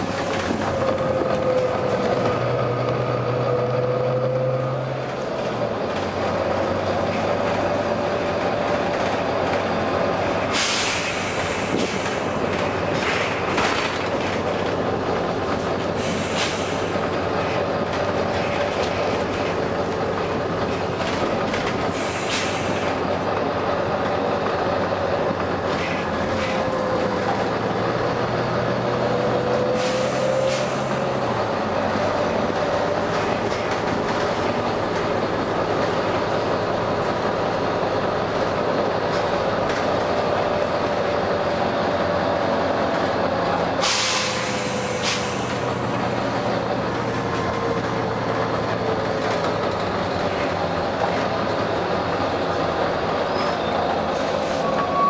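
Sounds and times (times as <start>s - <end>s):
bus engine with whine: 0.0s - 55.0s
air brake hisses: 10.5s - 12.2s, 16.0s - 17.0s, 21.9s - 22.8s, 29.7s - 31.0s, 43.8s - 45.9s.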